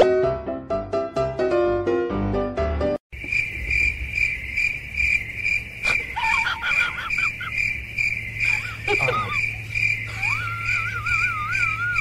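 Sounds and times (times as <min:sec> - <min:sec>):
music: 0:00.0 - 0:03.0
cricket chirping: 0:03.1 - 0:12.0.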